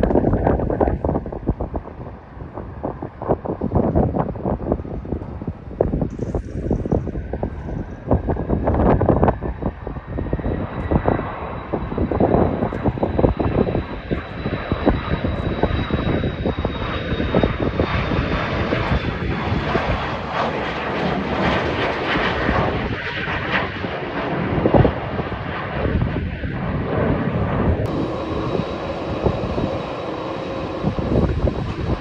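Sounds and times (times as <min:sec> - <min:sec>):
jet engines roaring: 0:00.0 - 0:32.0
high engine whine: 0:04.9 - 0:21.2, 0:27.0 - 0:32.0.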